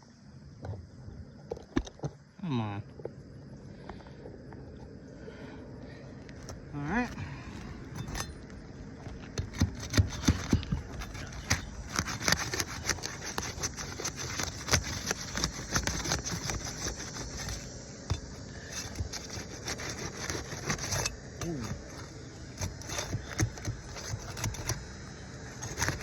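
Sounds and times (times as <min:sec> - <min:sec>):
roof shingles being pried loose: 0:09.0 - 0:26.0.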